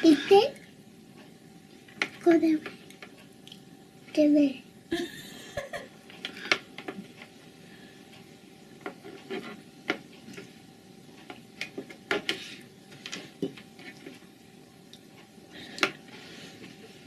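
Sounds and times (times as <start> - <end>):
forks tapping and scraping plates: 8.8 - 10.5, 11.2 - 14.2.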